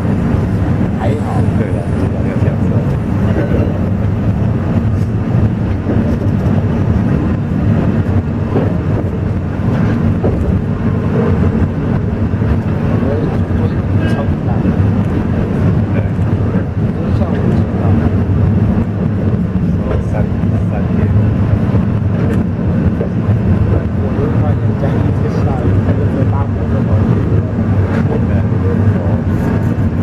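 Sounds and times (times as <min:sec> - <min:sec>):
train wheels rumbling: 0:00.0 - 0:30.0.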